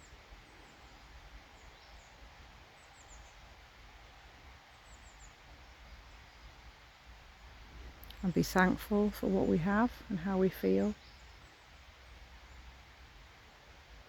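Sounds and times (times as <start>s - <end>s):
small birds chirping: 0.0s - 3.5s, 4.7s - 6.7s, 7.7s - 12.7s
distant running water: 0.0s - 14.0s.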